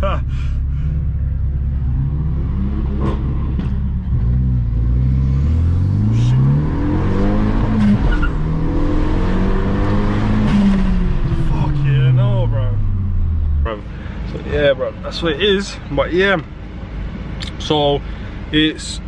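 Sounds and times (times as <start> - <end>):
car engine accelerating: 0.0 - 14.6.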